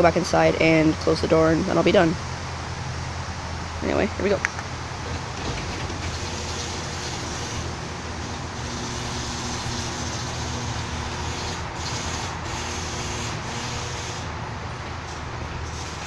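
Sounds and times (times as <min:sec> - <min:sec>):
garage door rumbling: 0:04.6 - 0:16.0
garage door opener motor hum: 0:04.7 - 0:16.0.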